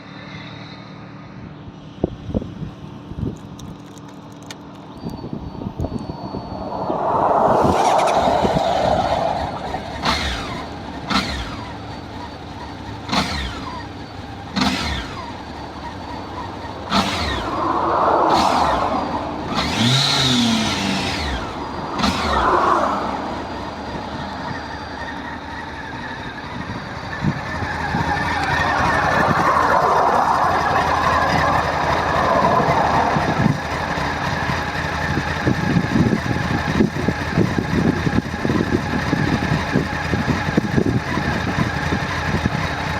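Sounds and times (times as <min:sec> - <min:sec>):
rushing noise: 0:05.5 - 0:11.4, 0:16.3 - 0:25.2, 0:26.5 - 0:35.0
motorcycle engine running: 0:18.6 - 0:42.9.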